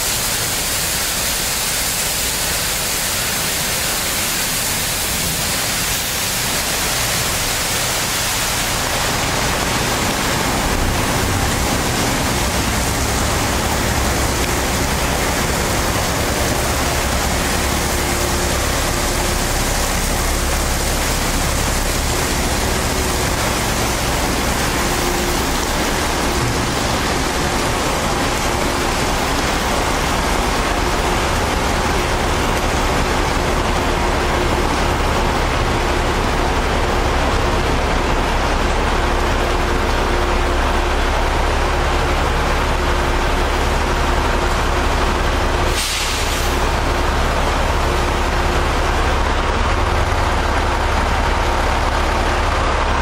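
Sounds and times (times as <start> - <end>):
water spraying hiss: 0.0 - 35.5, 45.6 - 49.0
low machine hum: 5.1 - 45.7.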